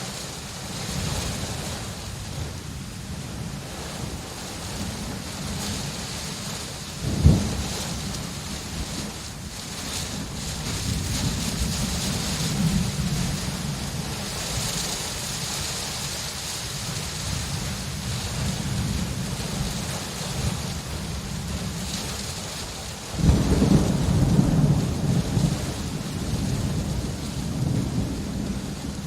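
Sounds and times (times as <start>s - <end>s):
steady rain: 0.0s - 29.0s
thunder rumbling: 0.7s - 15.8s, 23.0s - 29.0s
loud thunder clap: 7.0s - 8.1s, 23.2s - 29.0s.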